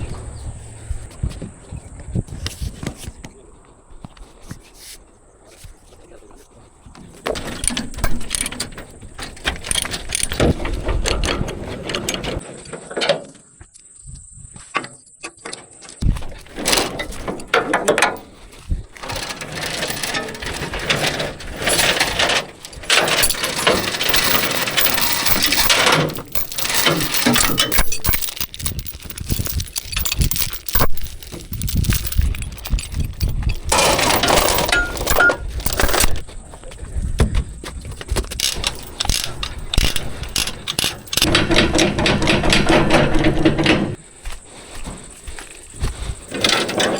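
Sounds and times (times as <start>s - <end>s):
metal clanking and scraping: 6.9s - 13.4s, 16.0s - 36.3s, 38.1s - 44.0s, 44.8s - 46.9s.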